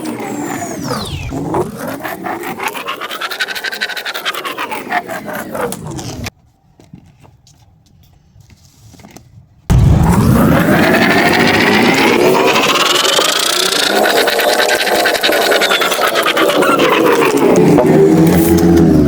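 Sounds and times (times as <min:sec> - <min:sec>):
pen scratching with rapid ticking: 0:01.9 - 0:06.3, 0:12.5 - 0:18.6.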